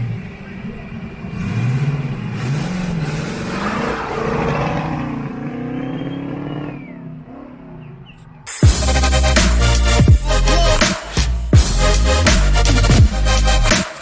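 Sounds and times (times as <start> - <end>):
car engine revving: 0.0 - 14.0
loud electronic music: 8.5 - 14.0.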